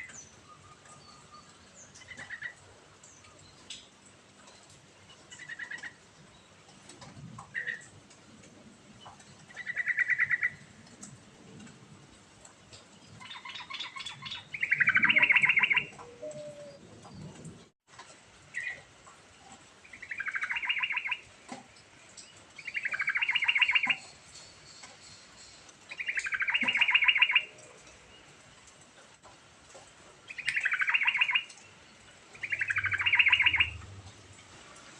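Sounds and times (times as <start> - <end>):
bird singing chattering notes: 13.2 - 16.8, 22.6 - 27.5, 30.3 - 31.5, 32.4 - 33.8.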